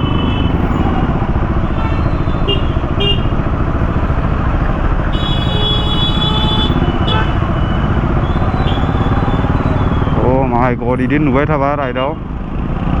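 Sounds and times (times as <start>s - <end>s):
vehicle horn: 0.0s - 3.6s, 5.0s - 10.0s
motorcycle engine rumbling: 0.0s - 13.0s
road noise: 0.0s - 13.0s.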